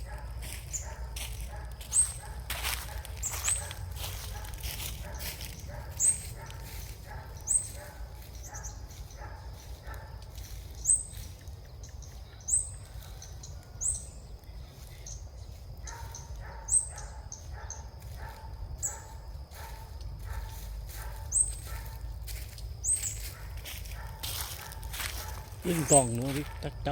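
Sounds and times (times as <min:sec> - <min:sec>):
high upward-hooked bird chirps: 0:07.4 - 0:07.8.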